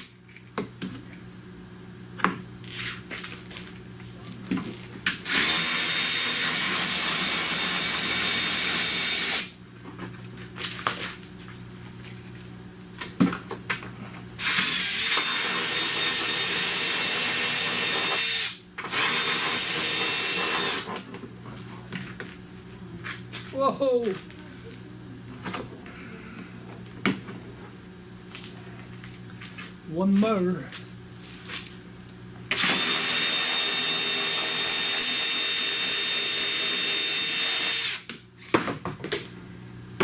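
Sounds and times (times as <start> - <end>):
power tool removing screws: 5.2 - 9.6, 14.4 - 21.0, 32.5 - 38.1.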